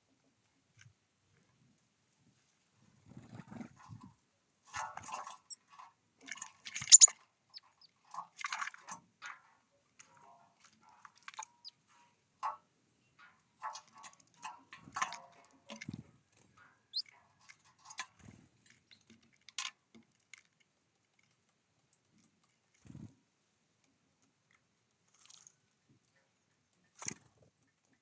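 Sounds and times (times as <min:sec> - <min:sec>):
birds pecking and cracking seeds: 0:04.7 - 0:12.6, 0:13.2 - 0:23.2, 0:23.8 - 0:28.0
bird chirp: 0:06.8 - 0:07.8.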